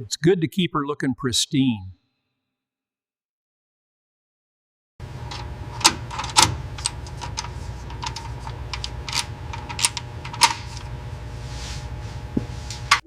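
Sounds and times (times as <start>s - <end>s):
low hum: 5.0s - 13.0s.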